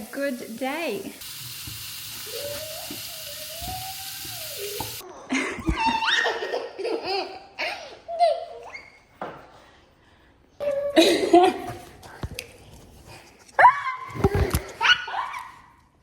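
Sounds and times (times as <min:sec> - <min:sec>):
patties sizzling in a frying pan: 0:00.0 - 0:05.0
child's wavering voice: 0:02.2 - 0:05.3
toddler laughing: 0:04.6 - 0:08.8.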